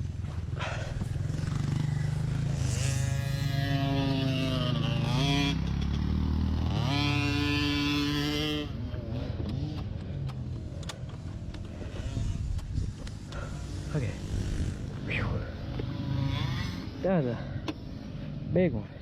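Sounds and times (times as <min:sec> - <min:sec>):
small motorbike engine revving: 0:00.2 - 0:18.3.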